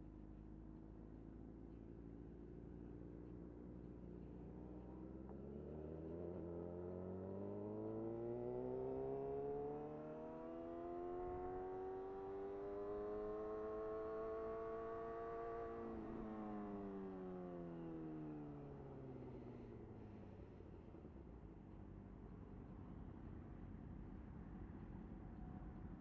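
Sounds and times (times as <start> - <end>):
motorcycle engine accelerating: 5.3 - 18.0.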